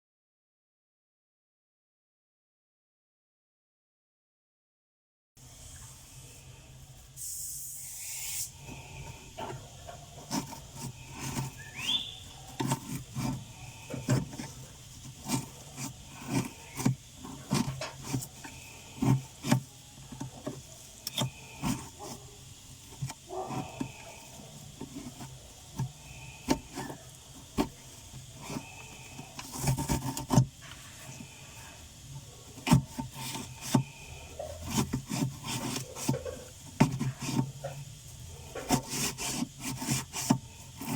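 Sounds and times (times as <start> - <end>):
refrigerator hum: 5.4 - 40.9
short hiss: 6.3 - 9.4
hands knocking and rubbing in freezer: 8.6 - 40.9.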